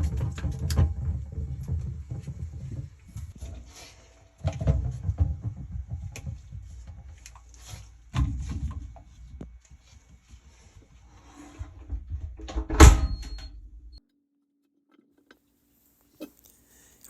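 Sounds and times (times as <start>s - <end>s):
knocks and clatter of handling: 0.0s - 9.3s.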